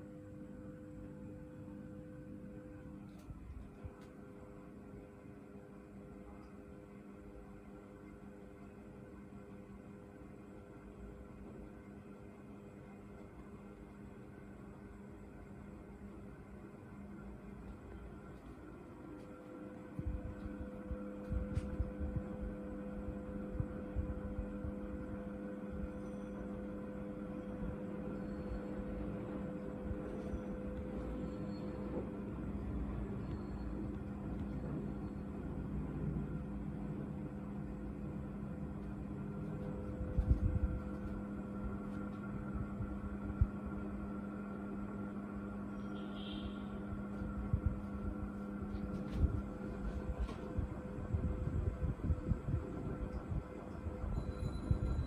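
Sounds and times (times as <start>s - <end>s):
ceiling fan motor hum: 0.0s - 55.0s
low rumble of moving air: 19.8s - 26.0s, 33.9s - 44.1s, 46.9s - 55.0s
wind buffeting microphone: 39.9s - 40.9s, 49.2s - 55.0s.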